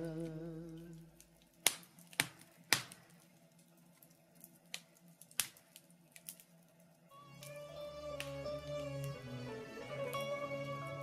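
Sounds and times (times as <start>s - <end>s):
wood fire crackling: 0.0s - 11.0s
plucked guitar: 7.5s - 11.0s.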